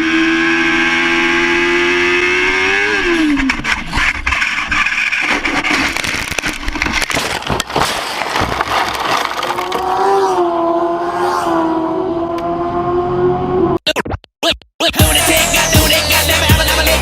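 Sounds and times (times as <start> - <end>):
engine knocks and clatter: 3.3 - 9.9.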